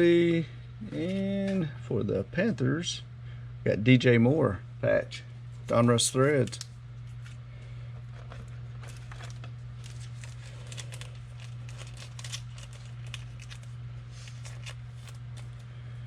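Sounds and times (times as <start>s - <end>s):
low hum: 0.0s - 16.0s
cards clicking and rustling: 8.1s - 15.6s.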